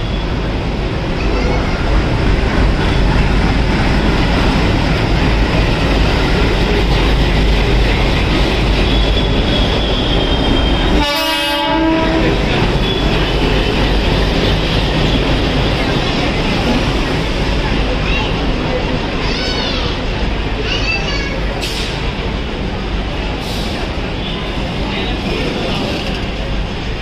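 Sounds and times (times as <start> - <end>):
train rumbling on track: 0.0 - 27.0
train horn blast: 10.9 - 13.0.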